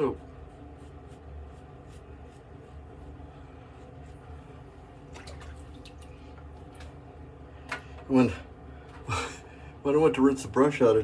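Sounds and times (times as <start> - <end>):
low steady hum: 0.0 - 11.0
water dripping and splashing: 5.1 - 7.0.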